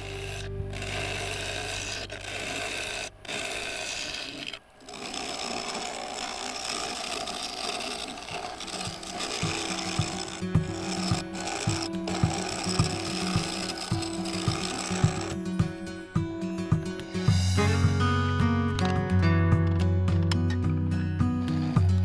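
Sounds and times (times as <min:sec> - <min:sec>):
background music: 0:00.0 - 0:03.2, 0:08.9 - 0:22.0
low hum: 0:00.0 - 0:04.5
scraping tool cutting wood on lathe: 0:00.0 - 0:17.6, 0:21.4 - 0:22.0.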